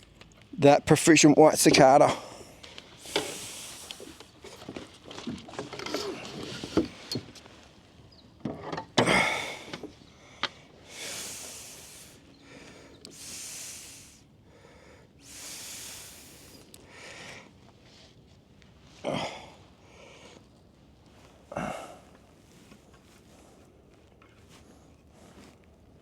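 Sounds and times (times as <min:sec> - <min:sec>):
breathy hisses: 0:02.1 - 0:04.5, 0:09.1 - 0:17.6
fish handling knocks and clicks: 0:03.2 - 0:07.4.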